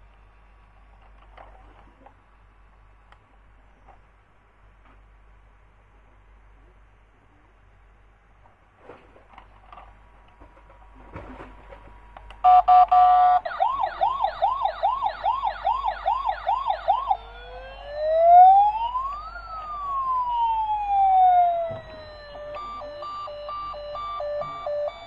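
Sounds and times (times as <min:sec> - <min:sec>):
toy siren rapid beeps: 0:12.5 - 0:25.0
toy siren slow wail: 0:12.5 - 0:25.0
toy siren yelping: 0:12.5 - 0:25.0.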